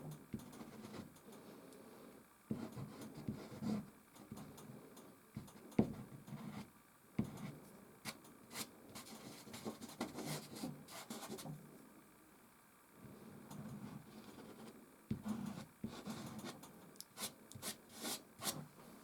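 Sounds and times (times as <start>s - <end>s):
pastel scratching on canvas: 17.2s - 18.7s.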